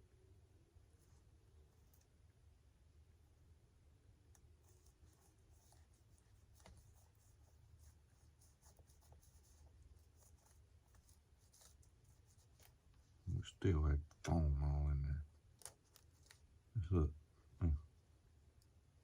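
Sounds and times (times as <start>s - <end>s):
low steady hum: 0.0s - 19.0s
small clicks: 15.5s - 16.5s.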